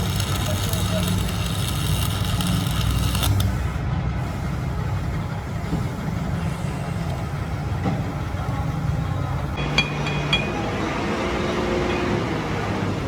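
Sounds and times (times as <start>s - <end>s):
machine humming: 0.0s - 13.0s
high whine: 9.5s - 13.0s.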